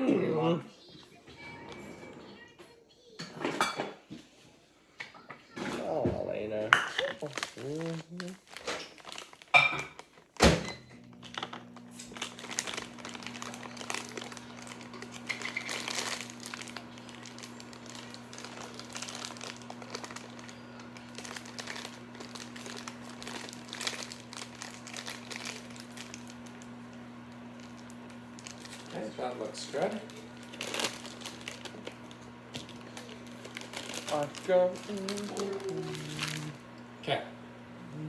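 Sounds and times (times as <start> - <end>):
plastic bag crinkling: 6.8 - 36.8.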